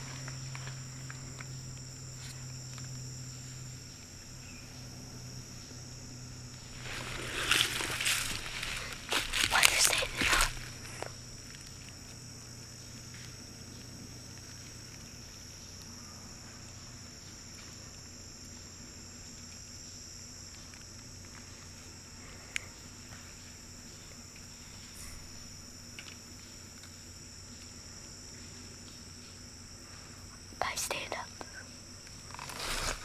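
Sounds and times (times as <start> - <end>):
high-pitched insect drone: 0.0 - 33.0.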